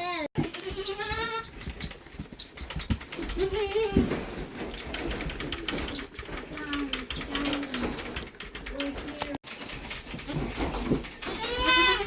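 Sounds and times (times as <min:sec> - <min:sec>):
goats bleating: 0:00.0 - 0:01.6, 0:11.1 - 0:12.0
hooves and buckets knocking: 0:00.4 - 0:12.0.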